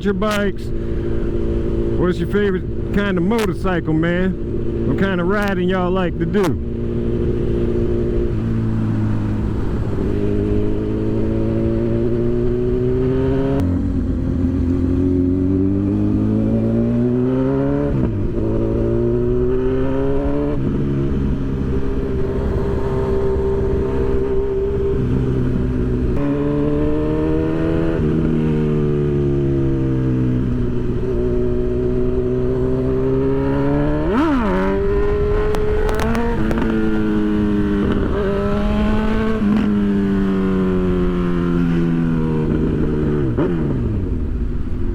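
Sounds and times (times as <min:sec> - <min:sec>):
motorcycle engine revving through gears: 0:00.8 - 0:44.9.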